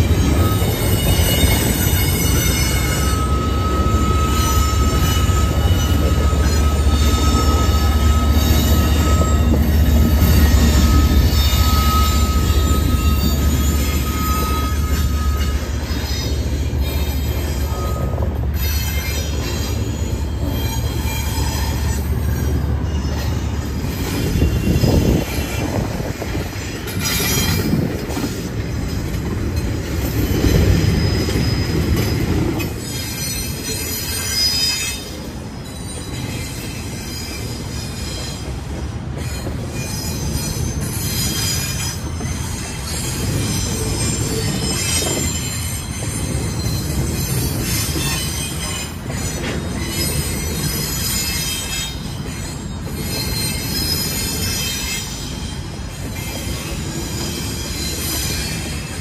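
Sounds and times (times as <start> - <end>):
train wheels rumbling on rail: 0.0 - 59.0
wheels squealing: 0.0 - 59.0.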